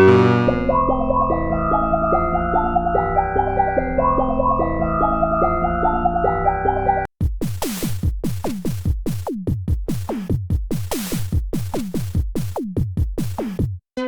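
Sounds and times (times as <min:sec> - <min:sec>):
pitched instrument phrase: 0:00.0 - 0:02.2
electronic drum-machine pattern: 0:00.0 - 0:13.8.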